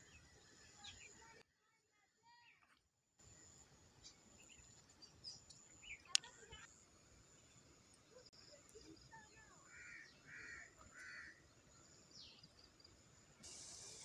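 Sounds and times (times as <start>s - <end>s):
bird chirps: 4.0s - 6.6s
harsh bird caws: 9.7s - 11.4s
steady hiss: 10.3s - 14.0s.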